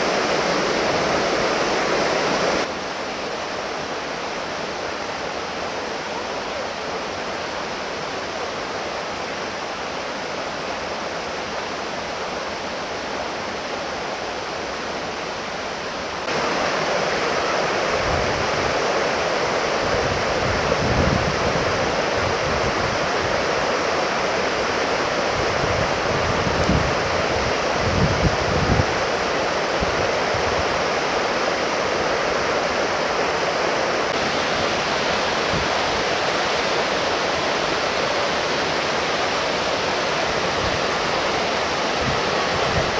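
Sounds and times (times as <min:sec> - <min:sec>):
waterfall rushing: 0:00.0 - 0:42.9.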